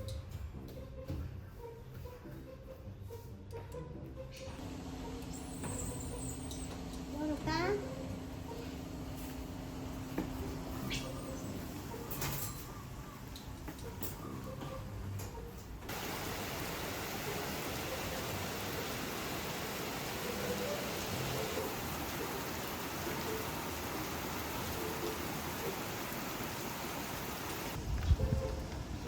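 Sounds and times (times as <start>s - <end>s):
heavy rain pouring: 15.9s - 29.0s.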